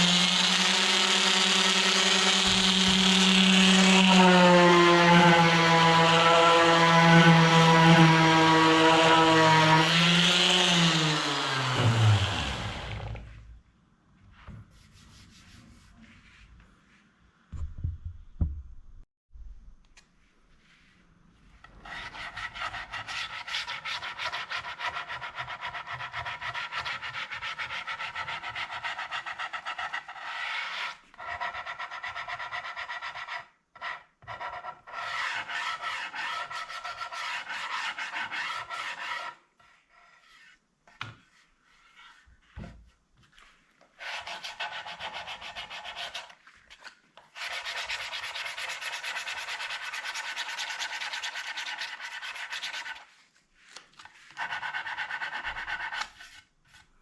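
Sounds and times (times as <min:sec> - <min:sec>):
abrasive tool scraping wood: 0:00.0 - 0:13.4, 0:21.5 - 0:56.9.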